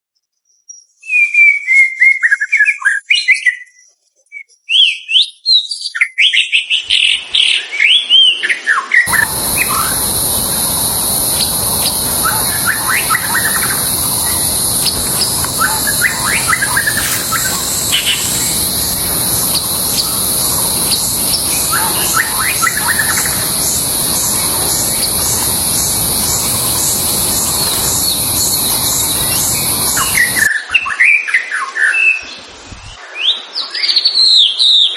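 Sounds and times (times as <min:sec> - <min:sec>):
bird singing whistled phrases: 0:00.7 - 0:06.6, 0:09.1 - 0:31.2
steady high hiss: 0:09.1 - 0:30.5.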